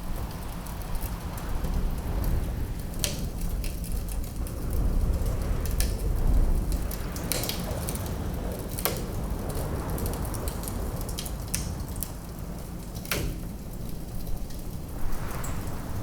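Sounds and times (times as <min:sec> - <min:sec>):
wood fire crackling: 0:00.0 - 0:16.0
wind rumbling: 0:14.0 - 0:16.0
fire popping: 0:14.5 - 0:16.0.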